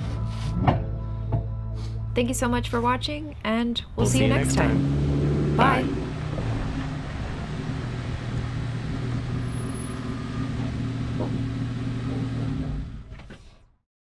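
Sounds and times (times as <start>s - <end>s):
engine running steadily: 4.0s - 13.4s.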